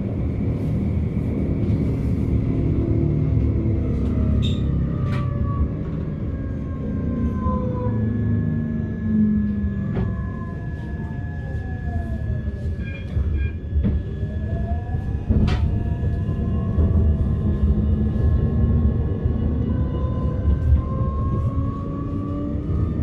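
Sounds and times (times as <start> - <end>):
tram rumbling on rails: 0.0 - 23.0.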